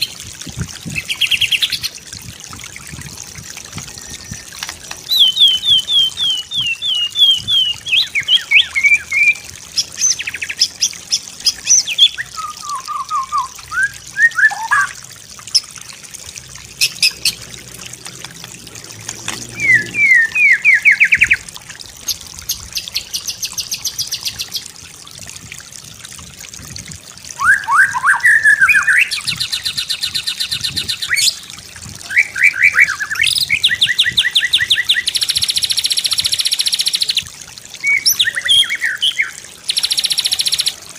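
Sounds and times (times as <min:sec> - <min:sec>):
songbird singing: 0:03.8 - 0:15.0, 0:19.2 - 0:21.4, 0:27.4 - 0:40.8.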